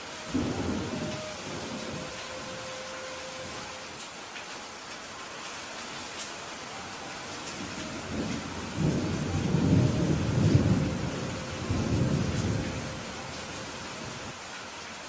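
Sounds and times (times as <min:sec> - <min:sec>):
thunder rumbling: 0:00.0 - 0:03.7, 0:07.5 - 0:14.4
steady rainfall: 0:00.0 - 0:15.0.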